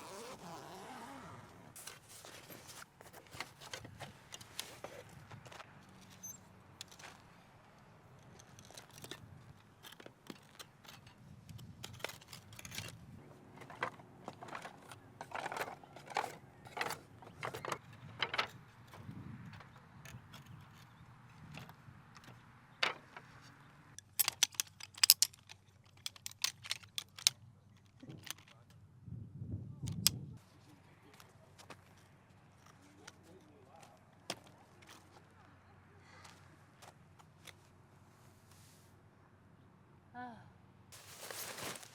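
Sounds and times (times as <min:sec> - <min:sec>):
camping gear clicks and clinks: 0:00.0 - 0:28.9, 0:29.9 - 0:37.8, 0:41.0 - 0:41.9
sharp metallic clicks: 0:24.0 - 0:28.5.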